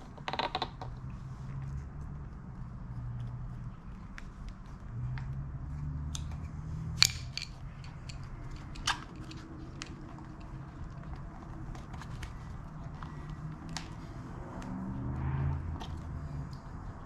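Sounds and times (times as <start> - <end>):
metal parts and tools clinking: 7.0 - 10.6.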